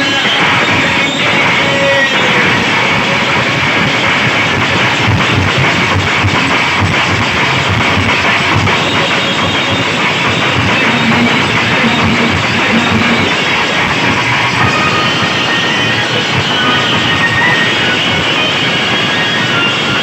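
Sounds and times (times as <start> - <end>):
heavy bass beat: 0.0 - 18.2
loud music through speakers: 0.0 - 20.0.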